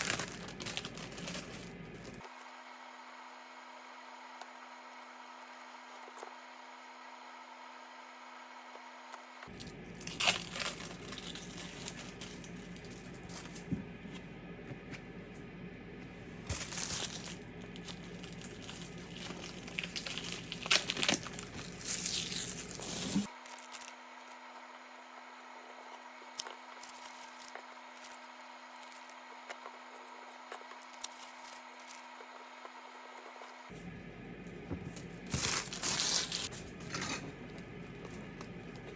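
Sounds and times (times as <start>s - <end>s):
material crinkling and tearing: 0.0s - 2.2s, 9.5s - 13.7s, 16.5s - 24.0s, 35.3s - 36.5s.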